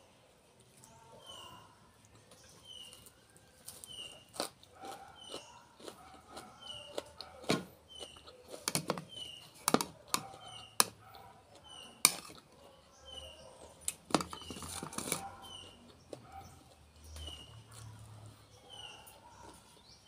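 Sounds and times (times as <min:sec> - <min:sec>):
crunching raw vegetables: 0:00.6 - 0:20.0
bird chirping softly: 0:00.8 - 0:20.0.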